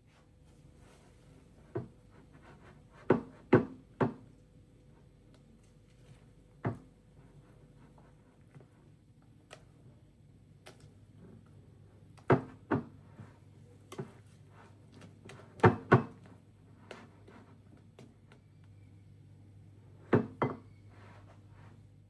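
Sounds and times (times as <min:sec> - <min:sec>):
knocks and thuds in a room: 0:02.9 - 0:04.4, 0:06.6 - 0:07.0, 0:12.2 - 0:13.4, 0:15.6 - 0:16.3, 0:20.0 - 0:20.7.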